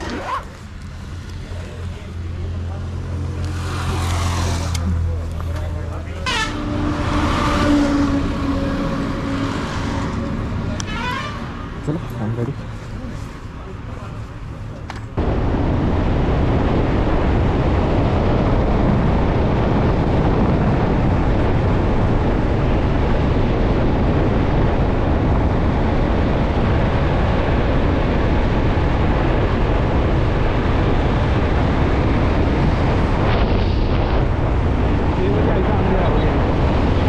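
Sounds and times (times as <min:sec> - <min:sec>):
motorcycle road noise: 0:00.0 - 0:37.0
wind buffeting microphone: 0:15.1 - 0:37.0.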